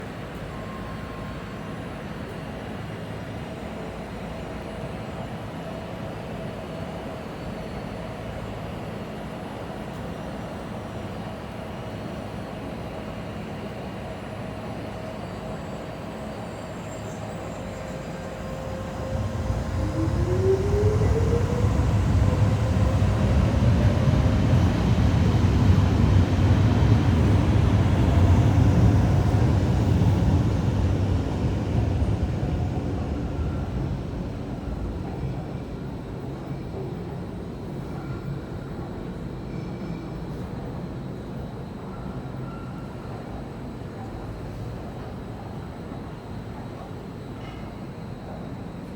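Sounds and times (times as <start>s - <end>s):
train passing: 16.7s - 46.9s.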